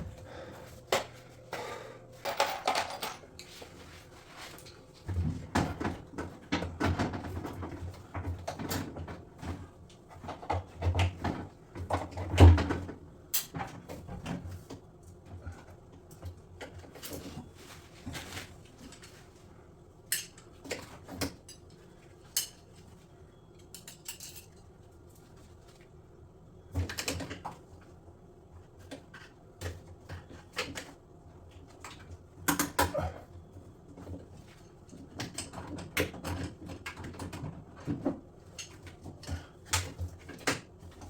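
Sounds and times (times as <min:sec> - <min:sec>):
parts being handled with knocks: 0:00.9 - 0:14.4.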